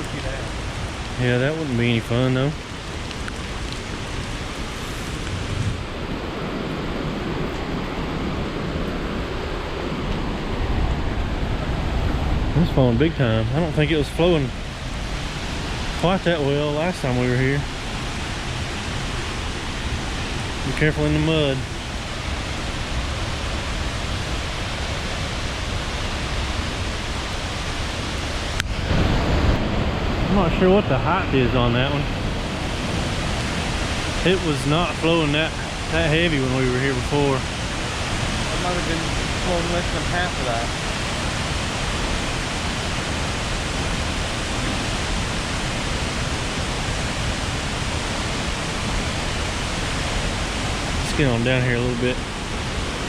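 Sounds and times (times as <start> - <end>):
waterfall roaring: 0.0 - 53.0.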